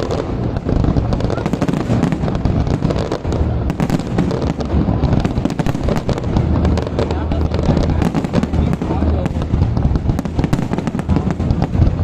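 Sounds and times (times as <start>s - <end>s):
fireworks cracks and bangs: 0.0s - 12.0s
low rumble: 0.0s - 12.0s.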